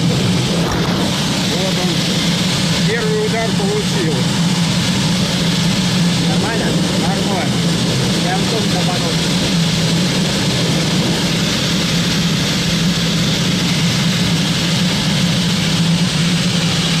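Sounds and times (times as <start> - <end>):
low drone: 0.0 - 17.0
rush of air in cockpit: 0.0 - 17.0.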